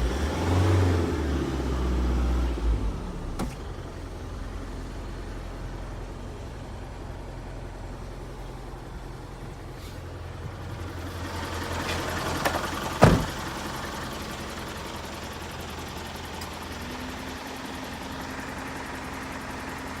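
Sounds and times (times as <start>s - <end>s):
truck engine idling: 2.4s - 20.0s
sharp thump: 13.0s - 13.4s.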